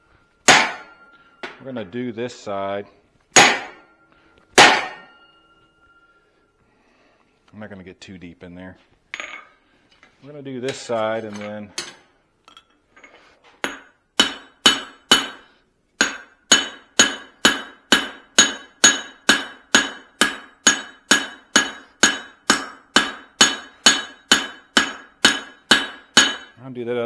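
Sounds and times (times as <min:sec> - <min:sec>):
hammer striking hot steel on anvil: 0:00.4 - 0:01.7, 0:03.4 - 0:06.0, 0:13.6 - 0:26.6.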